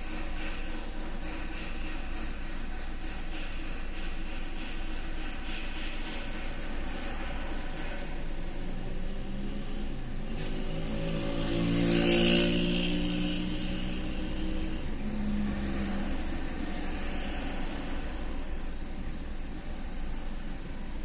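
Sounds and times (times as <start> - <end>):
road noise: 6.8 - 21.0.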